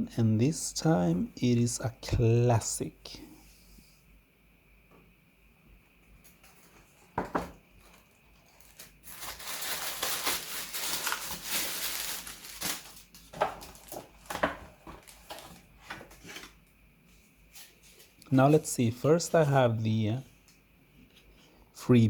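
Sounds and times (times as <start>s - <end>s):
packaging crinkling and rustling: 7.8s - 16.7s.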